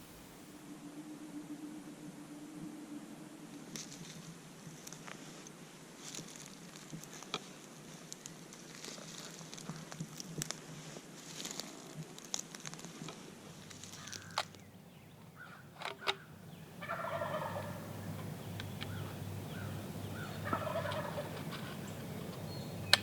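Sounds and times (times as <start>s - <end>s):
turkey gobbling: 15.3s - 23.0s
sharp clicks: 22.2s - 23.0s.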